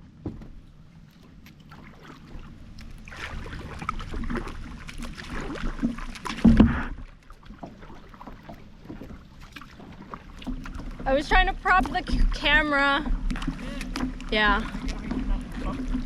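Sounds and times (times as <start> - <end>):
knocks against kayak hull: 0.2 - 0.7, 5.8 - 7.0
water splashing: 0.3 - 16.0.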